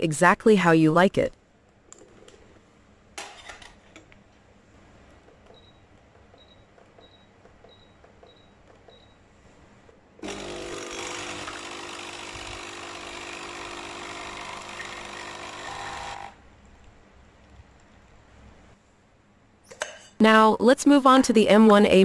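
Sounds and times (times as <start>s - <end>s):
coffee machine pump buzzing: 10.2s - 16.4s.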